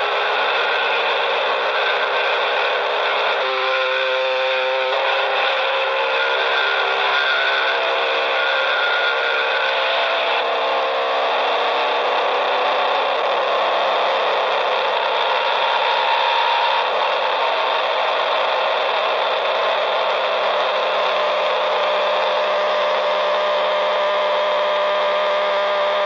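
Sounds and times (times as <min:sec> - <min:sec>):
chainsaw running: 0:00.0 - 0:26.0.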